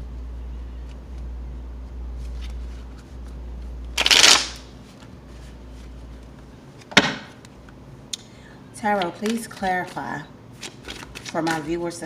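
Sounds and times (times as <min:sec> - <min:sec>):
cards riffling: 0:02.2 - 0:05.1, 0:10.6 - 0:11.7
cards snapping: 0:04.0 - 0:04.7.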